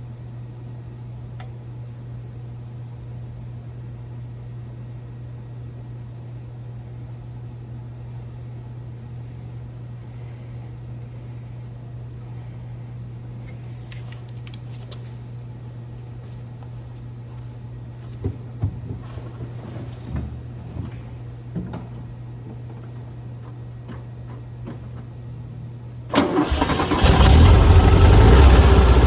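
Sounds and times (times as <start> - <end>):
car engine idling: 26.1 - 29.0.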